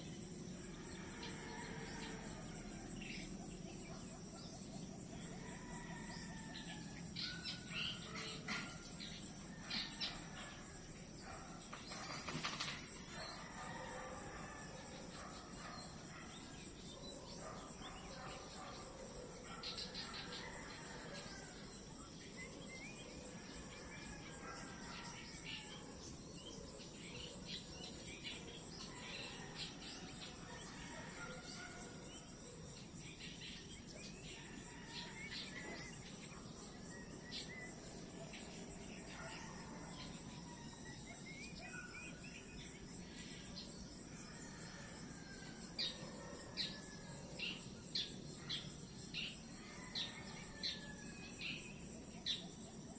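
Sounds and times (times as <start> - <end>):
insects trilling: 0.0 - 52.9
birds chirping and calling: 4.4 - 20.9.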